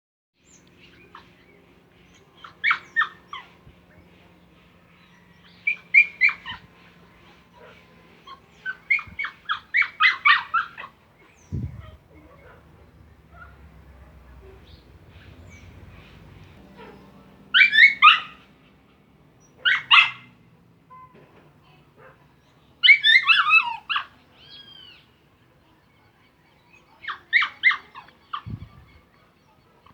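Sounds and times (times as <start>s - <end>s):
animal yelping cries: 2.4s - 3.6s, 5.7s - 6.7s, 8.3s - 11.0s, 16.8s - 18.5s, 19.6s - 20.3s, 22.8s - 25.0s, 27.0s - 29.0s
dog barking: 7.6s - 11.0s, 11.7s - 14.7s, 16.7s - 18.5s, 19.6s - 20.3s, 22.0s - 24.1s
low rumble: 11.4s - 17.6s.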